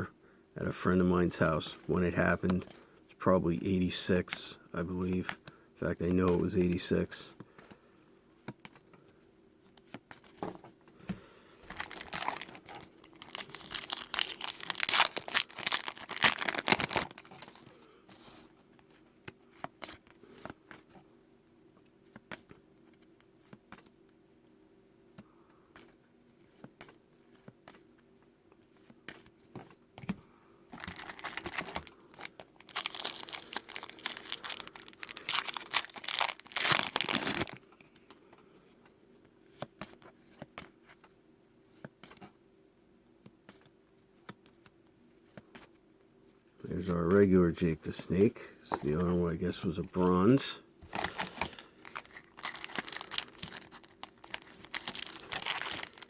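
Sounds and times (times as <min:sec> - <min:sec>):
packaging crinkling: 0:11.6 - 0:17.8, 0:30.7 - 0:37.6, 0:50.9 - 0:56.0.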